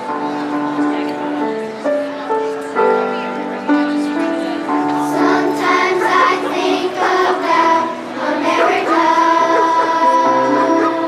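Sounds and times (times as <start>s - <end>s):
musical accompaniment: 0.0s - 11.0s
children's choir singing: 4.8s - 11.0s.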